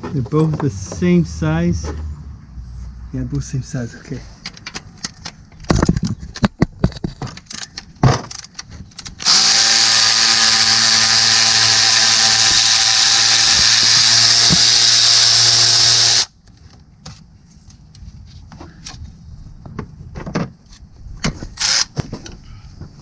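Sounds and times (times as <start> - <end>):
power ratchet running: 9.2 - 16.3.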